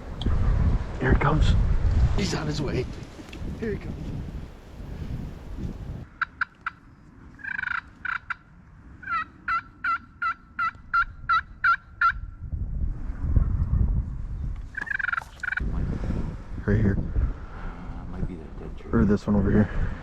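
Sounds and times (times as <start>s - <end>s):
turkey yelping: 7.4s - 8.4s, 9.0s - 12.2s, 14.8s - 15.6s.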